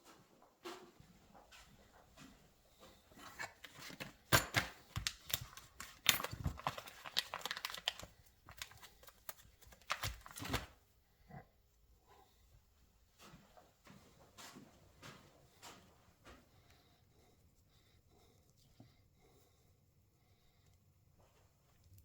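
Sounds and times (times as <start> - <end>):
clicks and knocks of metal parts: 3.9 - 5.0.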